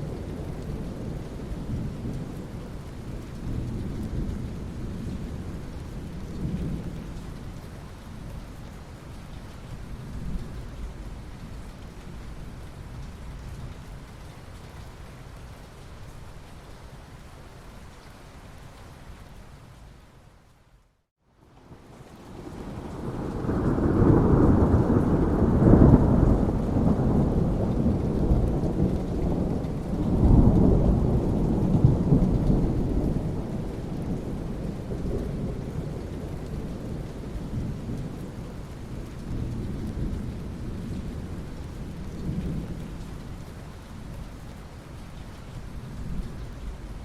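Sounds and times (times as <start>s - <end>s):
steady rain: 0.0s - 47.0s
thunder rumbling: 22.3s - 43.5s.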